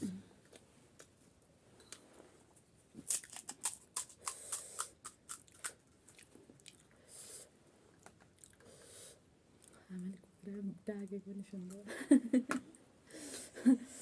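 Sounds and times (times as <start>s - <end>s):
crunchy food chewing: 3.0s - 6.9s, 8.0s - 8.6s.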